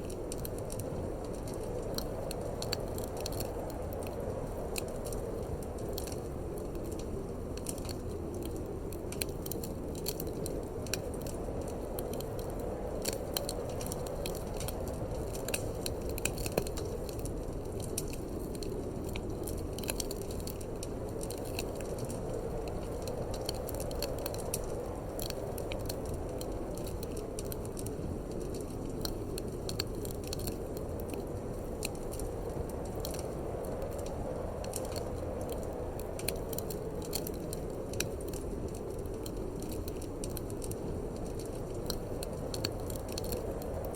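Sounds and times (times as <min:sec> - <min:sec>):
wood fire crackling and popping: 0:00.0 - 0:43.9.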